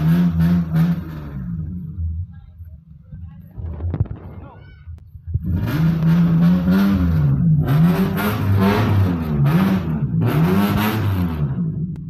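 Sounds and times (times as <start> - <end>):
engine revving through exhaust: 0.0 - 2.2, 5.3 - 12.0.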